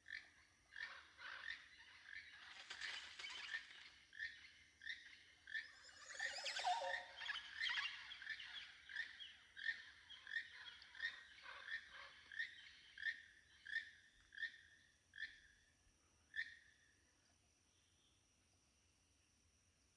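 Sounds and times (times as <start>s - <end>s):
birds calling with echo: 5.6s - 8.0s.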